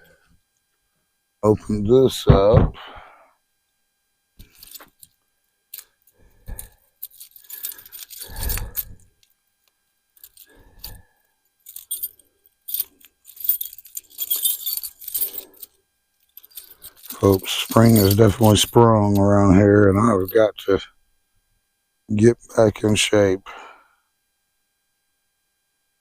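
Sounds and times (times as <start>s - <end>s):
metal tools clinking: 4.4s - 5.1s, 6.5s - 8.9s, 11.7s - 15.7s, 16.3s - 19.3s.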